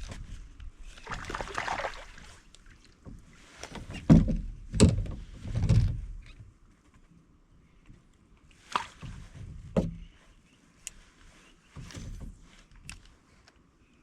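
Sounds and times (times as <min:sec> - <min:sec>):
water splashing: 0:00.9 - 0:03.1.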